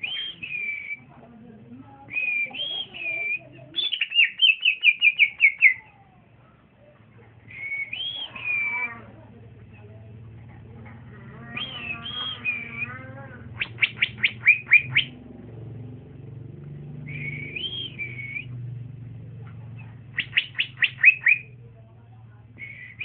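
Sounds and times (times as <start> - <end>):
bird singing sharp notes: 20.1 - 21.5.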